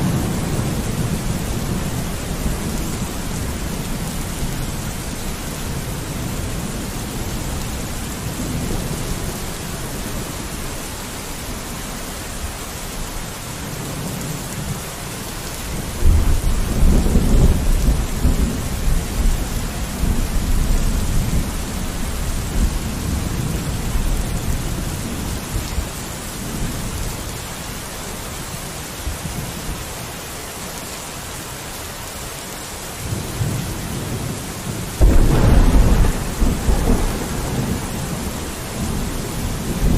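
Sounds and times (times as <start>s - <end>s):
thunder rumbling: 0.0s - 10.4s, 15.7s - 25.9s, 35.0s - 39.9s
rain on a window: 0.0s - 39.9s.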